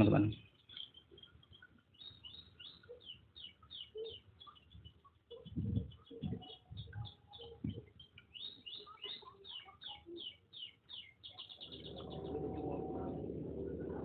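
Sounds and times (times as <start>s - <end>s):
small bird chirping: 0.0s - 14.0s
low hum with steady tones: 11.7s - 14.0s
low thumps: 11.7s - 14.0s.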